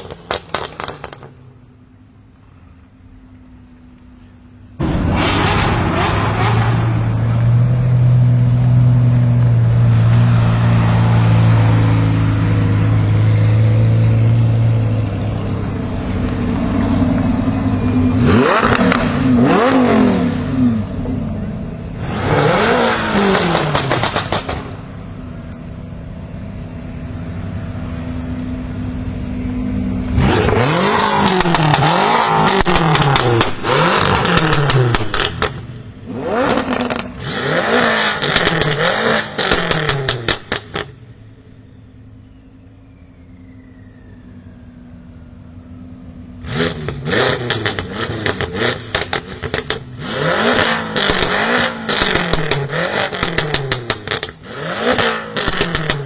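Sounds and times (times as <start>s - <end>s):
exhaust crackles and pops: 0.0s - 1.6s, 14.2s - 19.5s, 22.9s - 25.9s, 30.0s - 37.2s, 37.8s - 41.1s, 46.5s - 56.0s
car engine idling: 0.0s - 37.2s, 38.3s - 50.0s
car engine revving: 4.7s - 42.3s, 44.3s - 56.0s.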